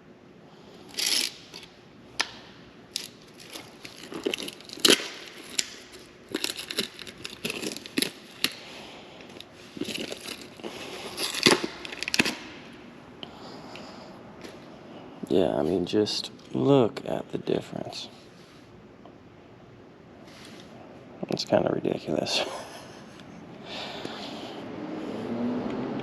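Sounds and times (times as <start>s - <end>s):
rustling and crinkling: 3.0s - 12.6s.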